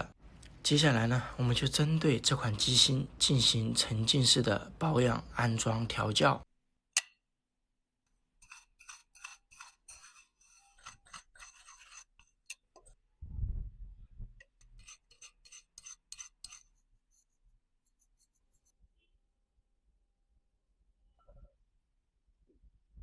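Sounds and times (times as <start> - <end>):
low rumble: 13.2 - 14.3.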